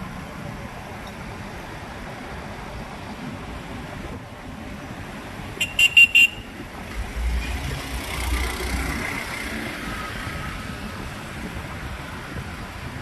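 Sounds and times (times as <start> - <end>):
street traffic noise: 0.0 - 13.0
vehicle horn toots: 5.6 - 6.5
vehicle engine passing: 6.8 - 10.6.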